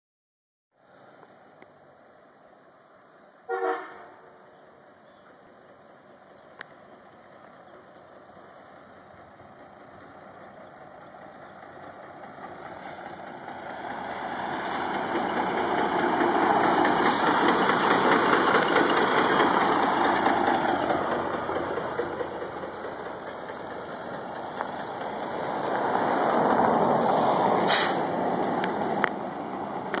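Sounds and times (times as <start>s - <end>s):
heavy vehicle passing: 6.8s - 30.0s.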